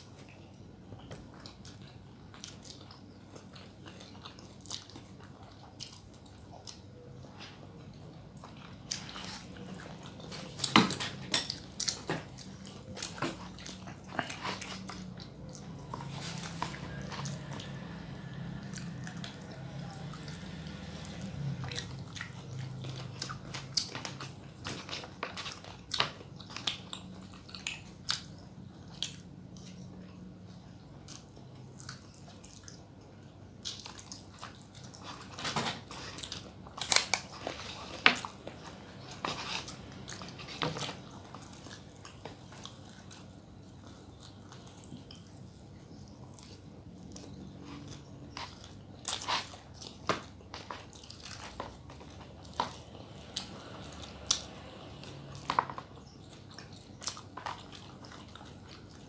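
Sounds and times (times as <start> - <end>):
biting and chewing: 0.0 - 59.0.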